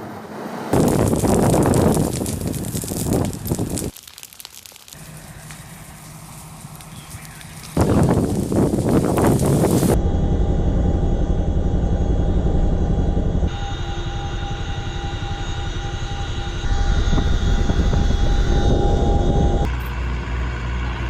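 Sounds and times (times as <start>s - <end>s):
aircraft engines running: 5.0s - 21.0s.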